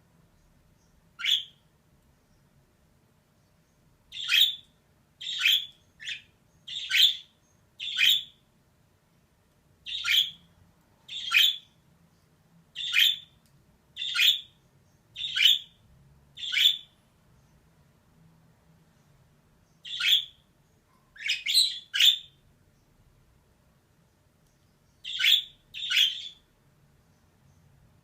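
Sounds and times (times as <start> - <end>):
budgerigar short calls: 1.2 - 1.6, 16.4 - 16.9, 25.1 - 26.4.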